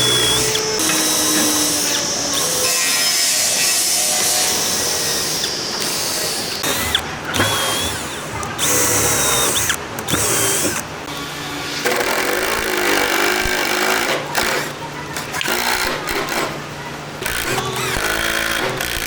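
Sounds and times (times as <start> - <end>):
electric drill working wood: 0.0 - 14.7, 15.3 - 16.5, 17.2 - 19.0.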